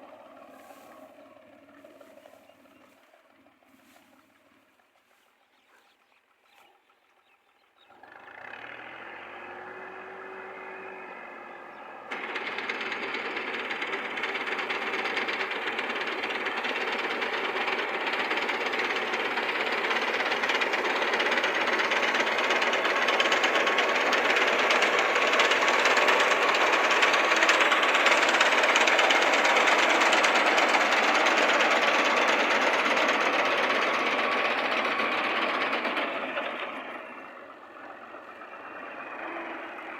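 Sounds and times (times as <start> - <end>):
tractor engine clattering: 7.9 - 39.9.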